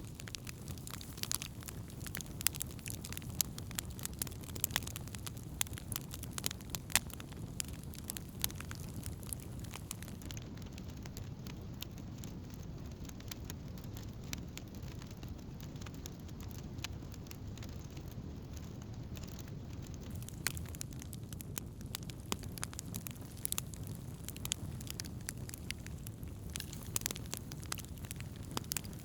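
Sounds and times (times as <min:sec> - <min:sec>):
campfire crackling: 0:00.0 - 0:29.0.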